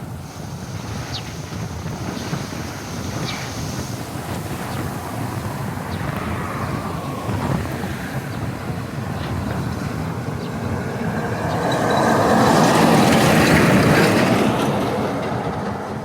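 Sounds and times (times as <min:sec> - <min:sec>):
wind buffeting microphone: 0:00.0 - 0:16.0
thunder rumbling: 0:03.6 - 0:15.5.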